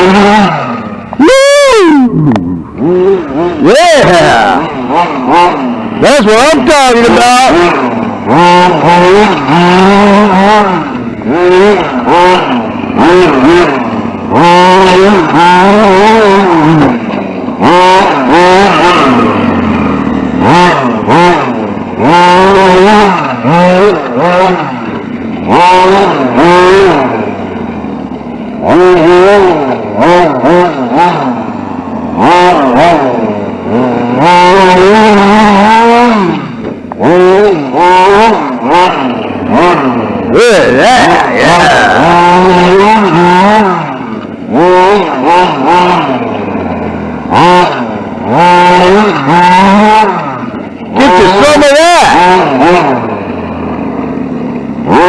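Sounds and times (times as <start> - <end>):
toy truck motor revving: 0.0 - 28.0, 28.6 - 55.0.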